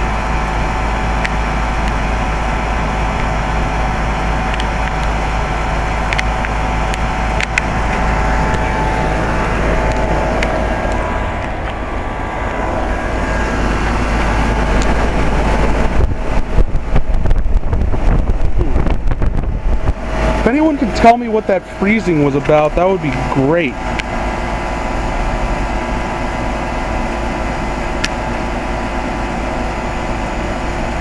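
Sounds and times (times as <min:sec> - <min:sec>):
heat pump humming: 0:00.0 - 0:31.0.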